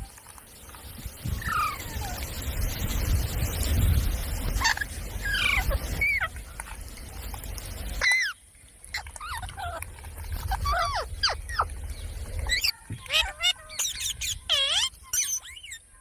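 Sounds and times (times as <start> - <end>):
parrot squawking: 1.4 - 2.2, 4.6 - 6.4, 10.4 - 11.7, 12.4 - 15.8.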